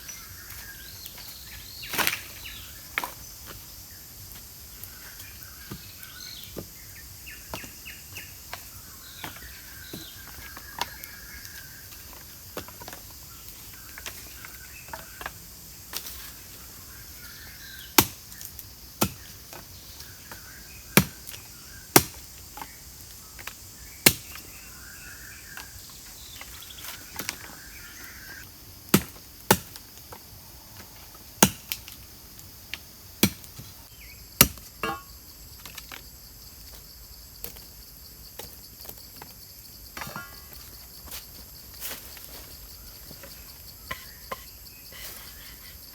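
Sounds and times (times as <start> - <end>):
high insect drone: 0.0 - 45.9
bird calls: 4.8 - 12.3, 22.6 - 28.4
wood being chopped: 17.9 - 19.6, 20.3 - 22.7, 23.4 - 24.4, 28.9 - 29.8, 31.4 - 31.9, 33.2 - 33.7, 34.4 - 35.8.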